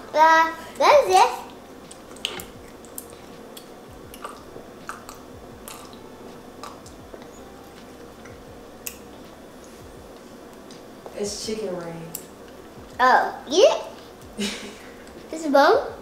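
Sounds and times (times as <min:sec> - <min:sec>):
children chewing food: 0:01.4 - 0:10.7
mouth clicks and smacks: 0:01.9 - 0:06.0, 0:06.6 - 0:07.3.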